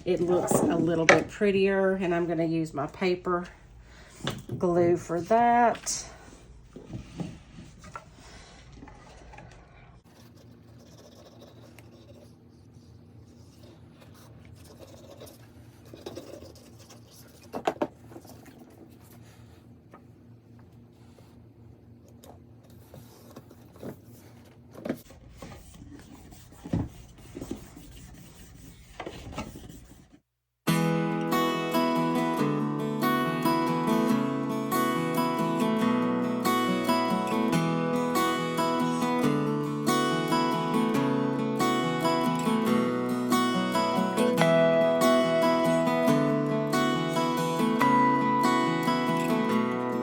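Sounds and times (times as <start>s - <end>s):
hands rubbing paper: 25.1s - 30.2s.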